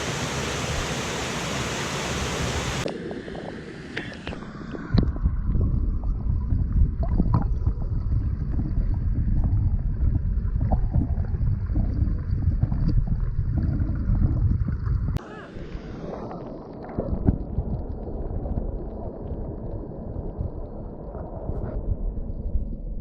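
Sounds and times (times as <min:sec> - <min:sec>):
wind buffeting microphone: 0:04.9 - 0:15.2.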